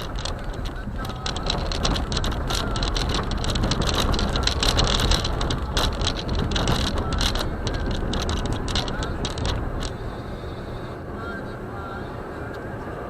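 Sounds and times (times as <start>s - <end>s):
crackle of clicks from snow: 0.0s - 10.0s
car tyres road rumble: 0.0s - 13.0s.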